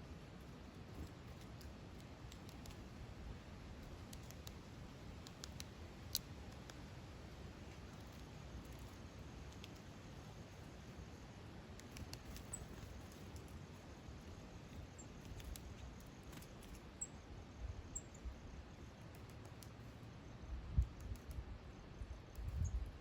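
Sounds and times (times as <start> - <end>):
small birds chirping: 11.7 - 23.0.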